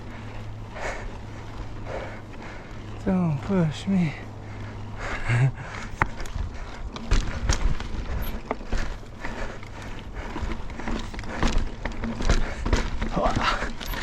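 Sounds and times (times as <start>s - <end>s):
bike knocking and rattling on rock: 0.1s - 14.0s.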